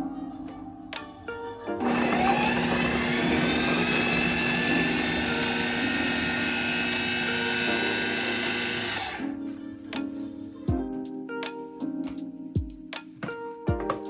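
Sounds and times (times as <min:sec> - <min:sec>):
electric appliance motor whirring: 0:01.8 - 0:09.3.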